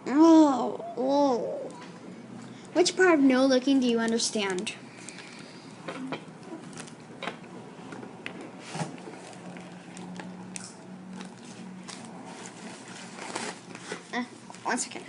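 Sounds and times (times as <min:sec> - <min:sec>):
book pages rustling: 0:07.8 - 0:14.6.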